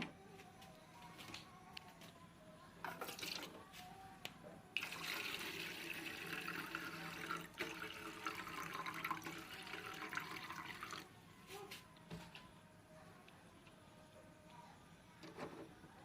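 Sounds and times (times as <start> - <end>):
faint steady hum: 0.0 - 16.0
water running: 4.8 - 11.1.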